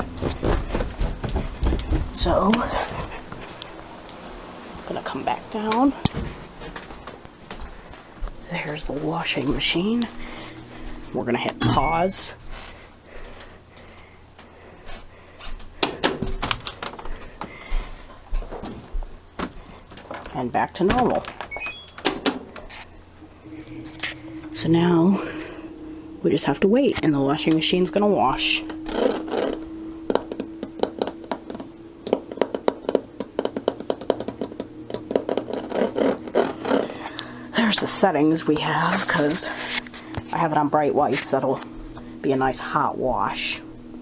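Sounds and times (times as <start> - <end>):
steady low hum: 0.0 - 44.0
short high beep: 11.6 - 12.2
sharp clicks and knocks: 29.0 - 36.5.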